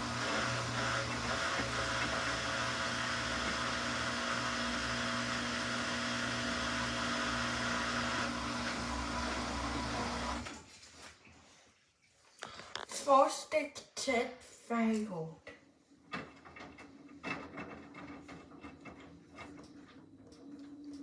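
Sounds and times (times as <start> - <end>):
washing machine spinning: 0.0 - 10.8, 15.8 - 21.0.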